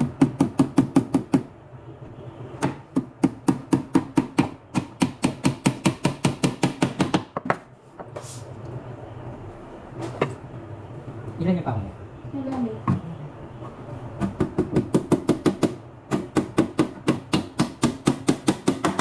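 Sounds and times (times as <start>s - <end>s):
hammer striking nails: 2.6s - 7.6s, 14.5s - 19.0s.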